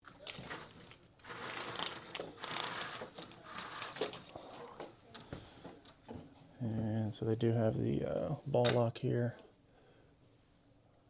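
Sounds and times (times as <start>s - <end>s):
rustling crinkling handling: 0.0s - 6.0s.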